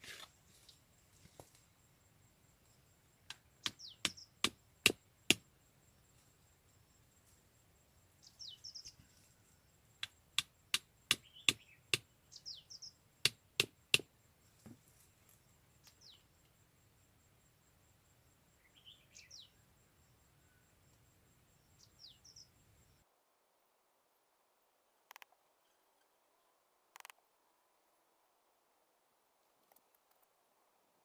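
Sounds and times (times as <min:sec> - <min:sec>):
bird chirping: 0:02.7 - 0:04.9, 0:08.2 - 0:10.2, 0:11.0 - 0:13.2, 0:15.8 - 0:16.4, 0:18.5 - 0:20.8, 0:21.5 - 0:23.0.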